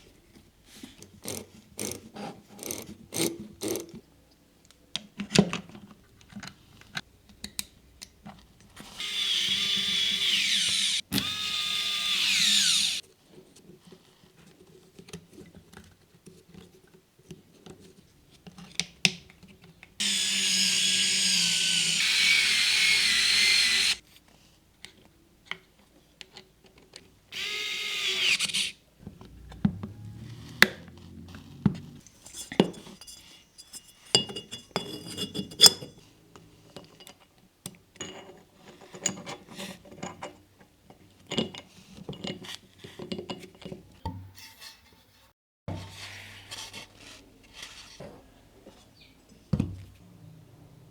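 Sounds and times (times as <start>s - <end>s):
small electric motor tool whining: 8.9s - 13.0s, 20.0s - 24.0s, 27.4s - 32.0s.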